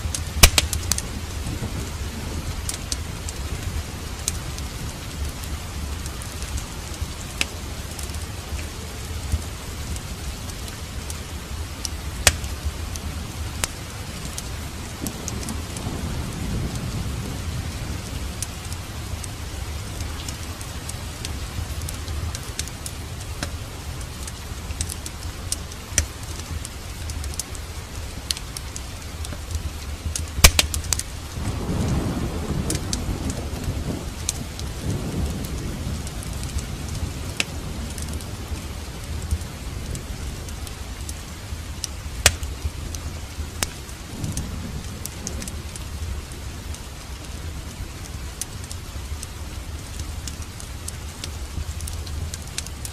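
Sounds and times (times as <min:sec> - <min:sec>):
thunder rumbling: 0:00.0 - 0:22.4, 0:29.6 - 0:49.5
fireplace fire crackling: 0:00.0 - 0:52.9
rain falling: 0:00.0 - 0:52.9.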